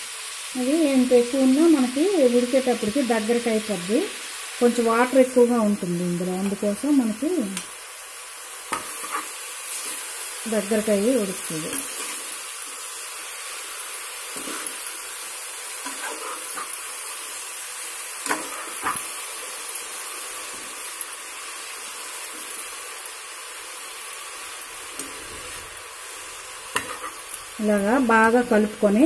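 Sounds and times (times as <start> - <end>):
mushrooms sizzling in oil: 0.0 - 29.0
spoon scraping against pan: 8.7 - 10.1, 14.3 - 15.0, 15.8 - 17.0, 26.7 - 27.4.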